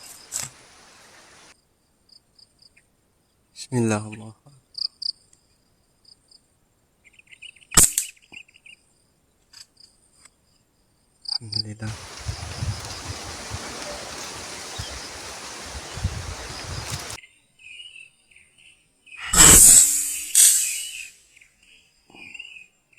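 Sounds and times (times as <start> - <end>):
steady hiss: 0.0 - 1.5, 11.8 - 17.2
faint insect chirping: 0.0 - 3.4, 9.8 - 17.2.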